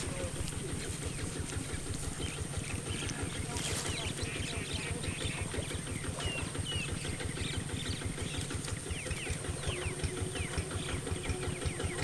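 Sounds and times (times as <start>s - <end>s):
low motor-like throb: 0.0s - 12.0s
small birds chirping: 0.0s - 12.0s.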